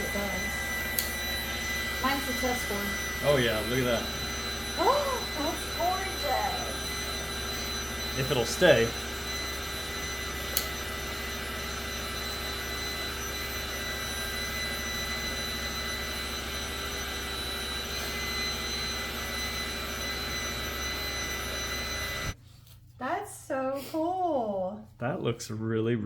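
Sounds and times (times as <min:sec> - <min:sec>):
heat gun blowing with motor hum: 0:00.0 - 0:22.4.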